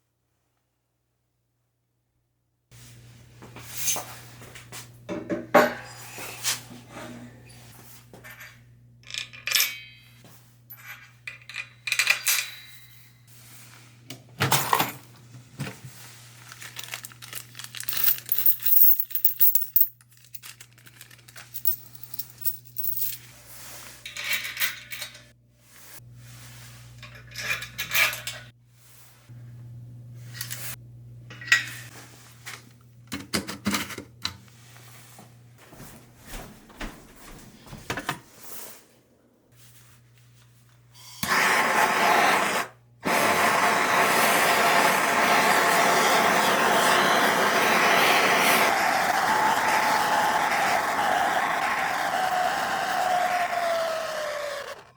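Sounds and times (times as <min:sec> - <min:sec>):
metal tools clinking: 0:16.8 - 0:23.2.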